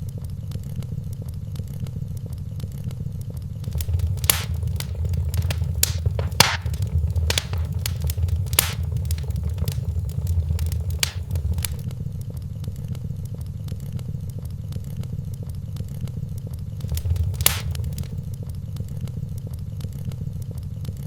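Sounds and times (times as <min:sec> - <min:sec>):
fire rumbling: 0:03.6 - 0:11.8, 0:16.8 - 0:18.2
wood fire crackling and popping: 0:03.6 - 0:11.8, 0:16.8 - 0:18.2.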